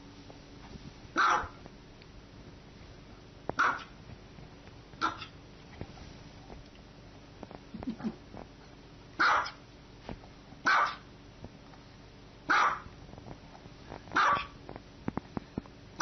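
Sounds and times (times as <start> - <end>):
small dog barking: 1.2 - 1.6, 3.6 - 4.0, 5.0 - 5.4, 9.2 - 9.6, 10.6 - 11.1, 12.5 - 12.9, 14.2 - 14.6.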